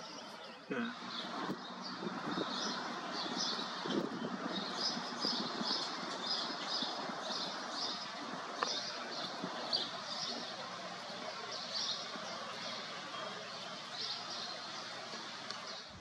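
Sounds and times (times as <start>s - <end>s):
bird chirping: 0.0s - 16.0s
steady rushing background: 0.9s - 11.9s.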